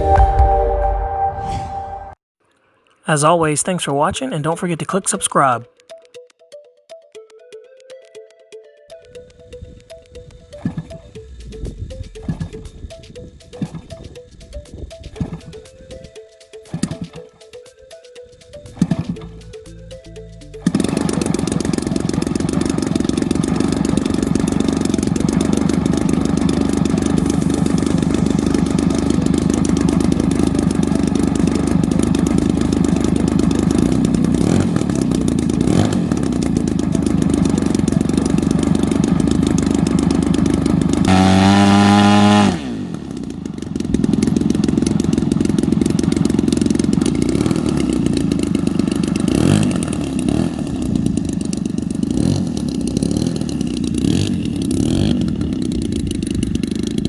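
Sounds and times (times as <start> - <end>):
model airplane engine running: 18.2 - 57.0.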